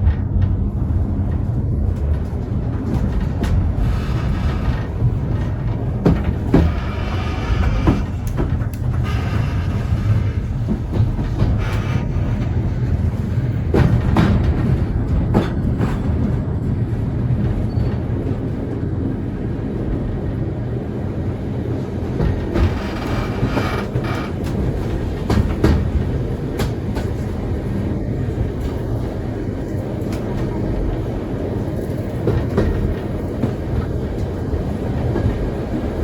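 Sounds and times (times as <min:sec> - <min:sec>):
wheels clicking over rail joints: 0:00.0 - 0:16.6, 0:22.1 - 0:27.4
train wheels rumbling on rail: 0:00.0 - 0:36.0.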